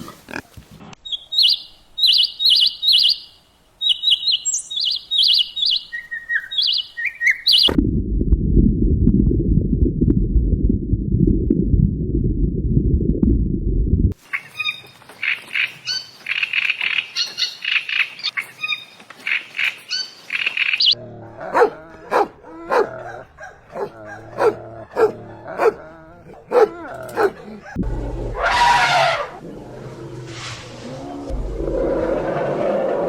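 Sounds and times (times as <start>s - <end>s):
drawn-out animal call: 20.9s - 27.8s.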